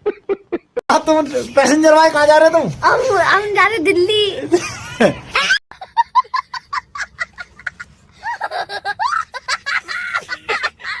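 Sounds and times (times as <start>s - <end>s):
children giggling and laughing: 4.5s - 11.0s.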